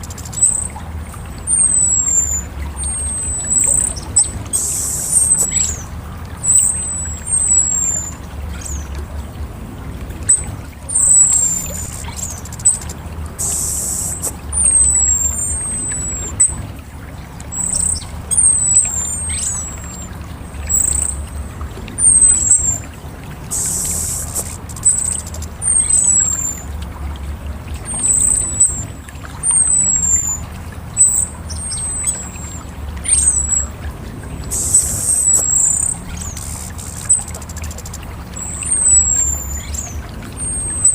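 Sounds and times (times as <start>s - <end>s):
thrush singing high whistled notes: 0.0s - 9.0s, 10.2s - 16.6s, 23.5s - 26.8s, 27.8s - 40.9s
hissy high bursts: 13.4s - 14.5s, 23.5s - 25.2s.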